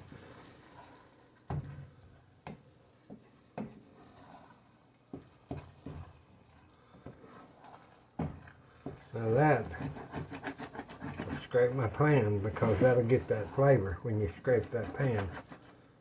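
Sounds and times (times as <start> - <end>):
faint sizzle of frying: 0.0 - 16.0.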